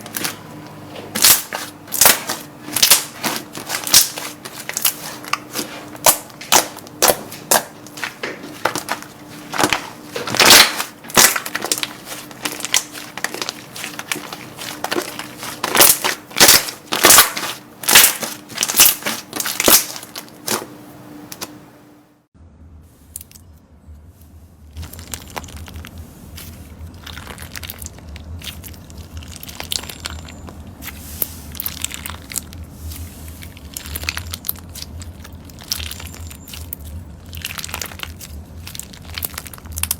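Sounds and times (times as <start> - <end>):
slime crackling when squeezed: 8.6 - 20.6, 33.5 - 39.9
low hum: 20.9 - 39.9.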